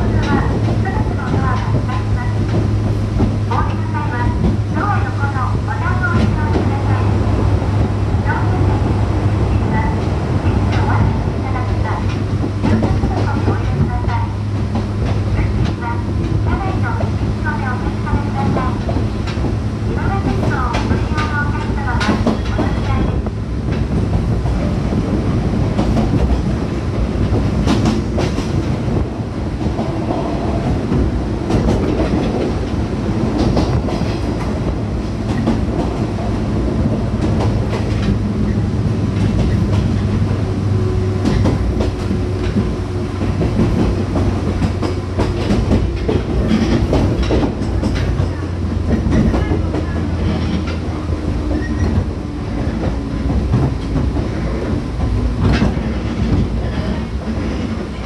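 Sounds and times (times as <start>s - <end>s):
train motors and wheels humming: 0.0s - 58.0s
wheels clicking over rail joints: 41.2s - 58.0s.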